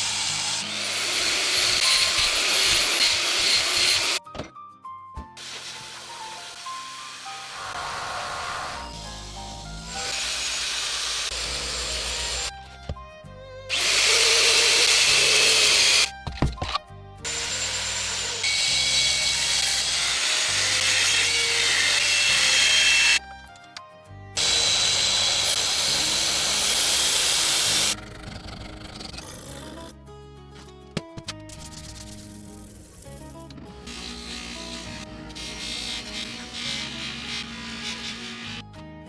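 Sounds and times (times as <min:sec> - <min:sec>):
electric power tool running: 0:00.0 - 0:04.2, 0:05.4 - 0:12.5, 0:13.7 - 0:16.1, 0:17.2 - 0:23.2, 0:24.4 - 0:28.0, 0:33.8 - 0:38.6
background music: 0:00.0 - 0:39.0.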